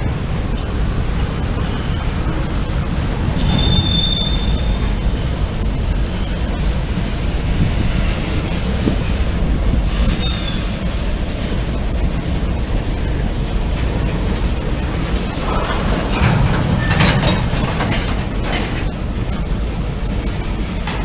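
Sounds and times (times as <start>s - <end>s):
freight train cars rolling: 0.0s - 21.0s
high wheel squeal: 1.3s - 2.4s, 3.3s - 6.6s, 9.9s - 10.8s.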